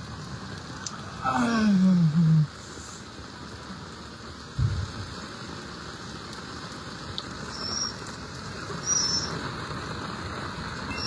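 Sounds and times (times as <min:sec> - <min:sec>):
dull low thump: 0:04.6 - 0:05.0.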